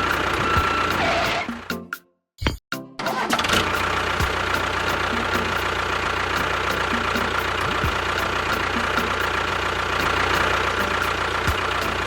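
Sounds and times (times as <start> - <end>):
small engine idling: 0.0 - 1.5, 3.2 - 12.0.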